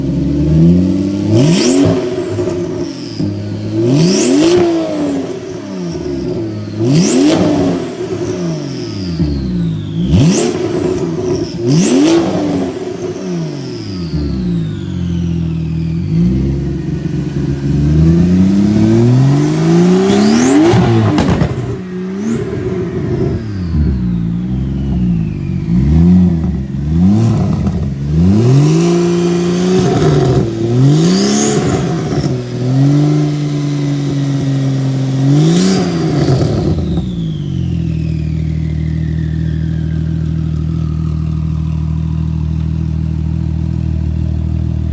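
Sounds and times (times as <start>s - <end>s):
car engine idling: 0.0s - 44.9s
car engine revving: 0.0s - 44.9s
turbo whistle: 36.2s - 41.8s.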